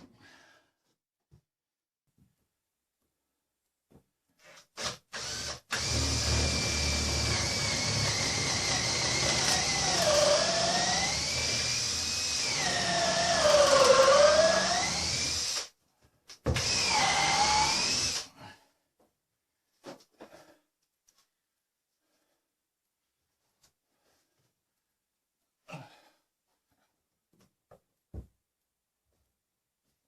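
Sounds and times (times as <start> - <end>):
electric drill boring through wood: 4.8 - 15.7, 16.5 - 18.3.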